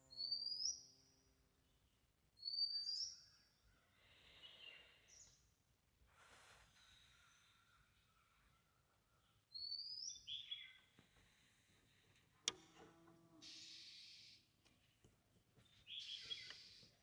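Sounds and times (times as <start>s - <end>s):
birds chirping: 15.6s - 17.0s.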